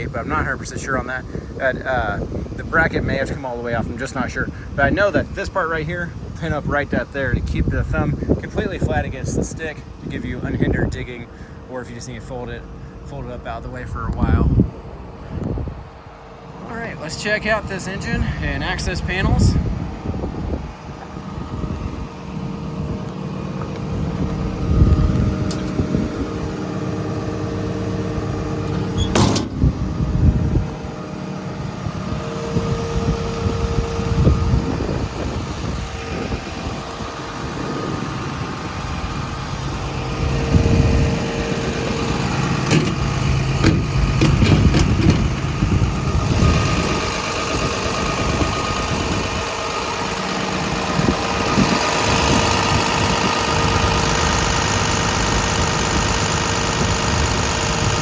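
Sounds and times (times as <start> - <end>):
diesel excavator engine idling: 0.0 - 58.0
sharp metal clunk: 28.7 - 29.8, 42.6 - 45.3.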